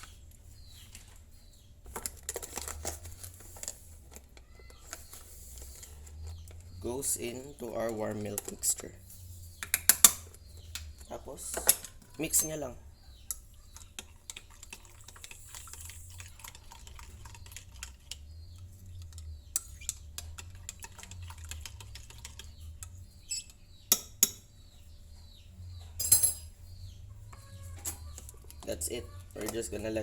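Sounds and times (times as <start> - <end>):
spoon clinking against container: 11.5 - 15.9, 26.0 - 26.6.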